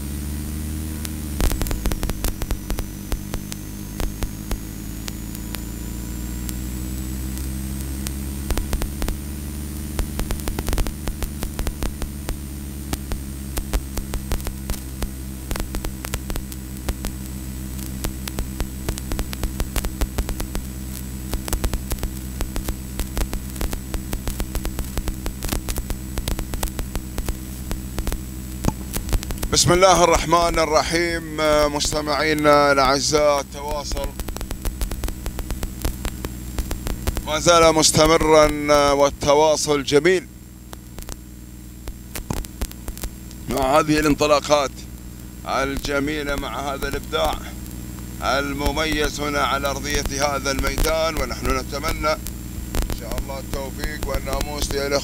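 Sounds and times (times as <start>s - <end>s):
vehicle engine hum: 0.0s - 55.0s
sharp clicks and knocks: 28.6s - 29.5s.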